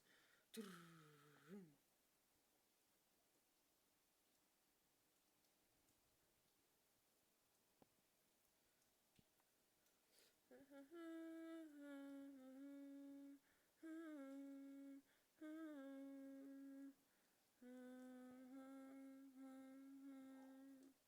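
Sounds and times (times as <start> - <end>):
person humming: 0.0 - 1.8, 10.5 - 21.0.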